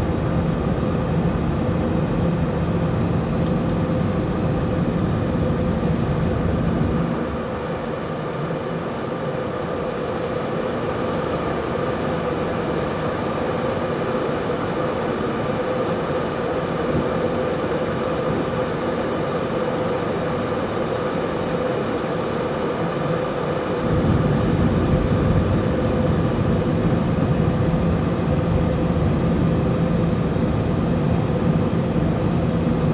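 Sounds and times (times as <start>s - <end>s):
cabin air rush and engine drone: 0.0s - 32.9s
constant hum: 0.0s - 32.9s
deep rumble: 23.8s - 29.3s.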